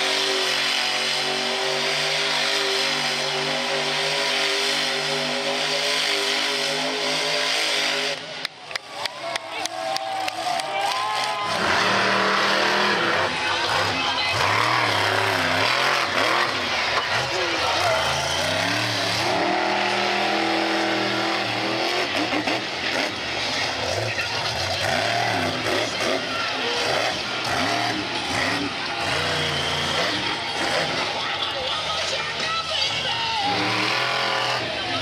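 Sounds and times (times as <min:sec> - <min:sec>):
monster truck engine revving: 0:00.0 - 0:08.8, 0:09.6 - 0:35.0.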